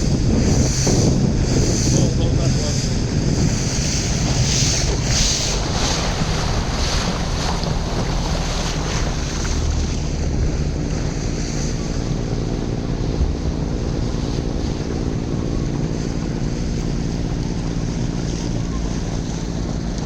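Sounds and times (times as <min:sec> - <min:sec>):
motorboat engine drone: 0:00.0 - 0:20.0
water rushing past: 0:00.0 - 0:20.0
wind buffeting microphone: 0:00.0 - 0:20.0.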